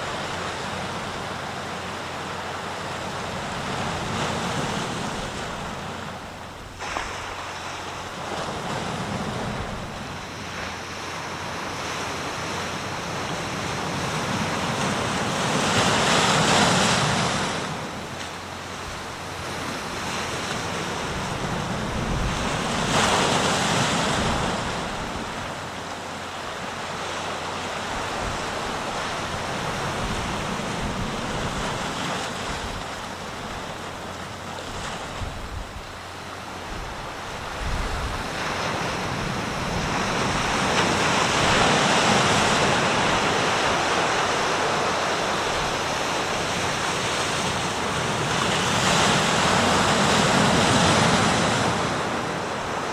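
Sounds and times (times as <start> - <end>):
waves breaking: 0.0 - 52.9
wind buffeting microphone: 18.9 - 23.5, 27.8 - 52.9.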